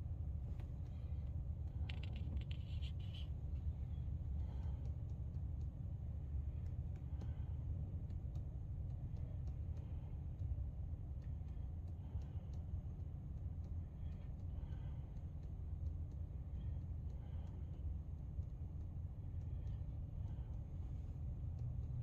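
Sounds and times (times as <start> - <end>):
truck engine rumbling: 0.0 - 8.0
faint ticks: 0.5 - 22.0.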